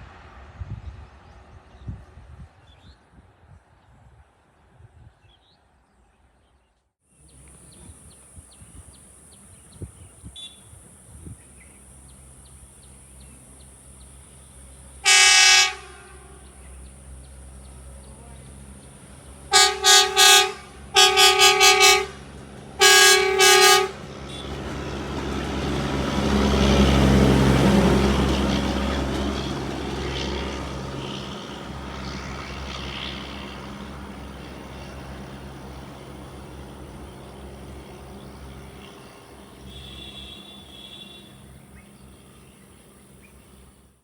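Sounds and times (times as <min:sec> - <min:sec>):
train rumbling past: 0:00.0 - 0:05.0, 0:07.2 - 0:44.0
train horn blasts: 0:15.0 - 0:17.0, 0:19.5 - 0:24.9, 0:38.3 - 0:41.6.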